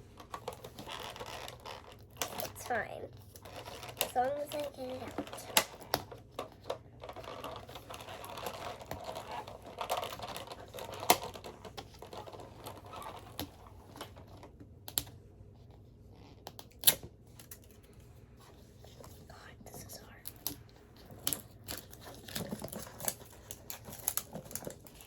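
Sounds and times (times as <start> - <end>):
packaging rustling and scraping: 0.0 - 14.6, 20.8 - 25.0.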